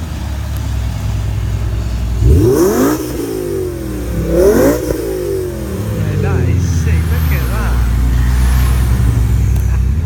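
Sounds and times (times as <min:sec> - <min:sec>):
idling engines drone: 0:00.0 - 0:10.0
car engine revving hard: 0:02.2 - 0:10.0.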